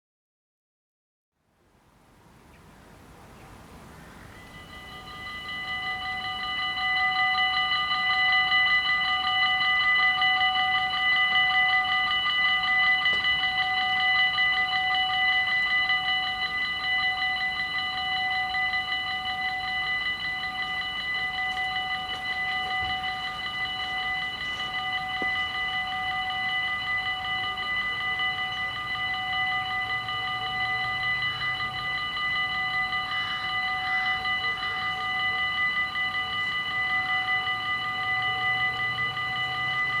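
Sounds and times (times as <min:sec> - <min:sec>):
level-crossing warning bells: 0:01.8 - 0:40.0.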